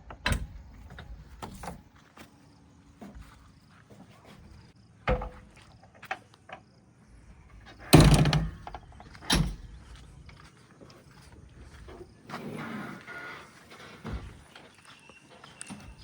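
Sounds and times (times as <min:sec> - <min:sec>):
rocks clanking into steel trolley: 0:07.8 - 0:09.8.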